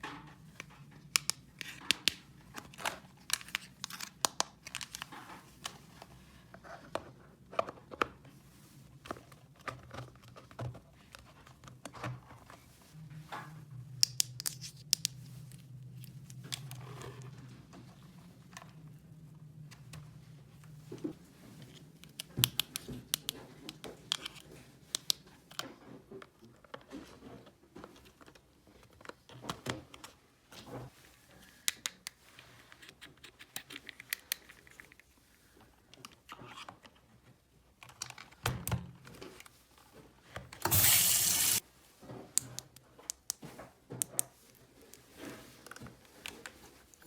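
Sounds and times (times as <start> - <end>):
loud hiss: 40.7 - 41.6.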